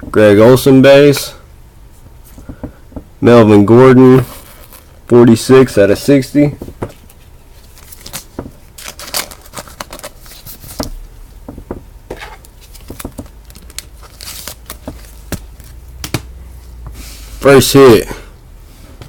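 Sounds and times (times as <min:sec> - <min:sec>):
plastic packaging crinkling: 0:07.0 - 0:11.0, 0:12.2 - 0:15.8.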